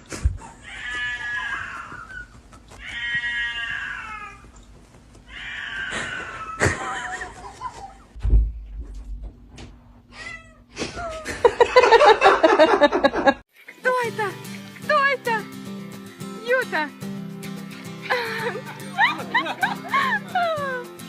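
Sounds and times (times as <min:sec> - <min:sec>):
cat meowing: 0:00.6 - 0:02.2, 0:02.8 - 0:04.5, 0:05.3 - 0:06.6, 0:10.1 - 0:10.7
thump: 0:08.2 - 0:09.8.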